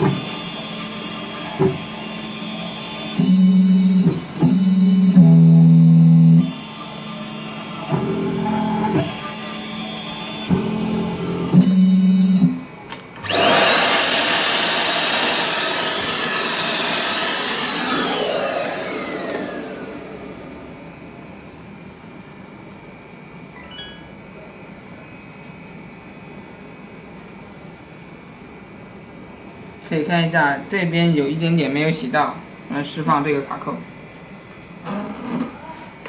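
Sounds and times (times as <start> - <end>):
low motor hum: 3.2 - 6.5.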